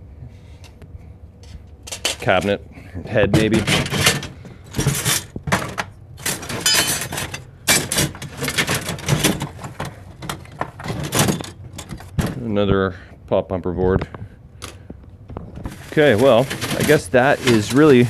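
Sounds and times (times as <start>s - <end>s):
metal parts clattering in a bin: 1.4s - 12.5s, 14.6s - 18.0s.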